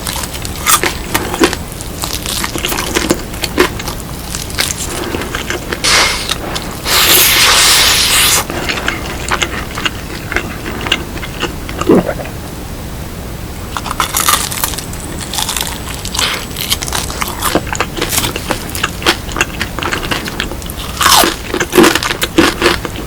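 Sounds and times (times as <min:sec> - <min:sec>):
crunchy bites and chewing: 0:00.0 - 0:12.2, 0:13.7 - 0:23.0
loud hiss-like rustle: 0:05.8 - 0:08.5.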